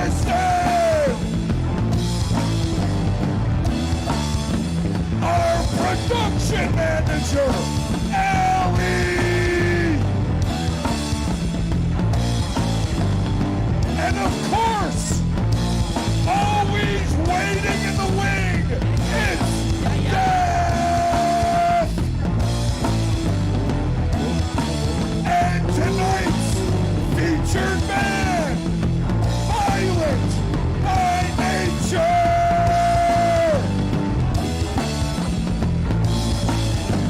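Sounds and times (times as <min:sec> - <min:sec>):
person singing and yelling: 0:00.0 - 0:01.3, 0:05.2 - 0:10.1, 0:14.0 - 0:15.2, 0:16.2 - 0:22.1, 0:25.2 - 0:28.7, 0:29.4 - 0:33.9
loud rock band: 0:00.0 - 0:37.0.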